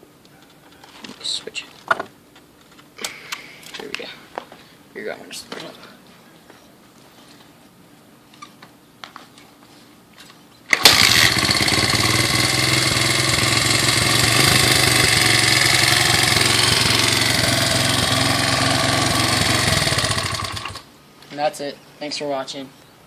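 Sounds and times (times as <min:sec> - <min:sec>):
dirt bike engine starting and running: 0:10.7 - 0:20.9.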